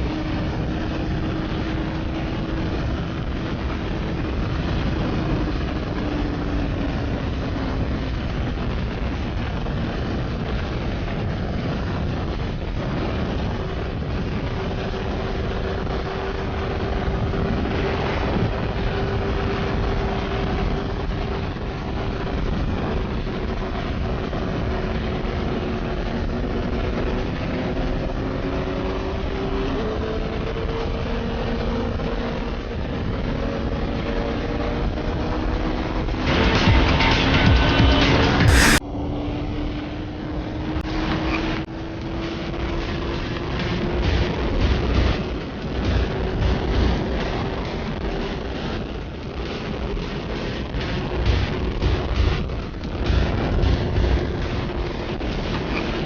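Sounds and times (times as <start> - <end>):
wind rushing over microphone: 0.0 - 56.0
motorcycle engine: 38.4 - 38.8.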